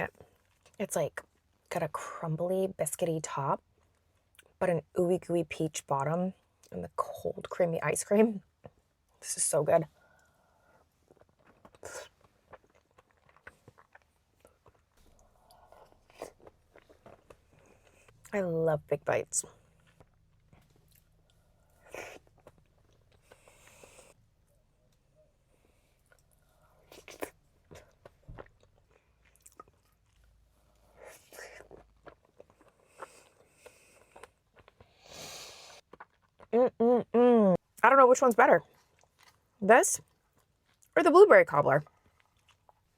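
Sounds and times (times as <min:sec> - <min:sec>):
person chewing wet mouth sounds: 0:11.1 - 0:18.3, 0:19.6 - 0:24.2, 0:25.7 - 0:36.6.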